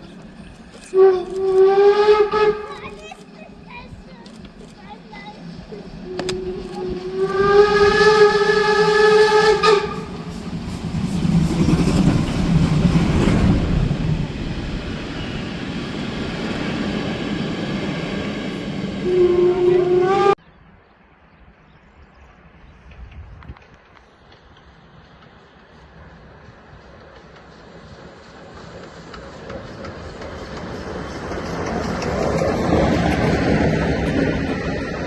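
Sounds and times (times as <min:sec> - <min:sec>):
locomotive steam rumble and hiss: 0:00.0 - 0:20.4, 0:22.2 - 0:35.0
steam locomotive whistle: 0:00.9 - 0:02.8, 0:06.0 - 0:10.5, 0:19.0 - 0:20.4.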